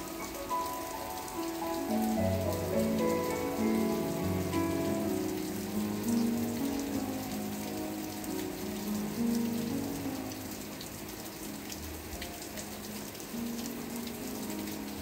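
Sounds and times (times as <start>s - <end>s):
rain falling: 0.0s - 15.0s
soft held music notes: 0.0s - 15.0s.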